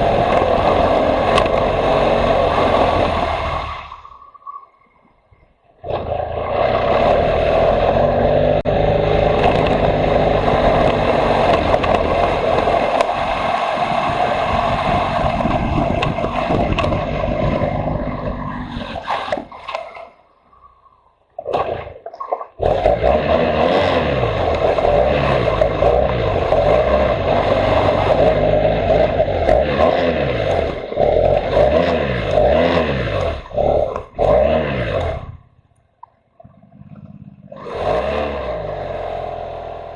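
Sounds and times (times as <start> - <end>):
motorcycle engine revving: 0.0 - 4.0, 5.8 - 19.3, 22.6 - 35.8, 36.4 - 39.9
steady rushing noise: 0.0 - 5.0, 7.2 - 19.6.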